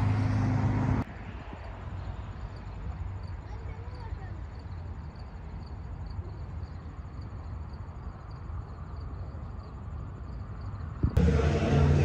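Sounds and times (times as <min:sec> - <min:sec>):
faint insect chirping: 0:01.4 - 0:11.2
wind rumble on microphone: 0:04.4 - 0:11.8.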